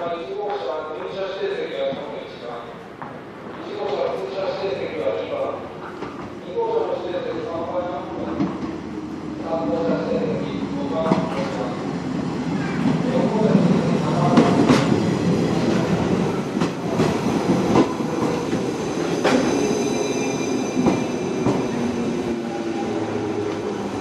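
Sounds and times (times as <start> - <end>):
high brake squeal: 18.9 - 23.0.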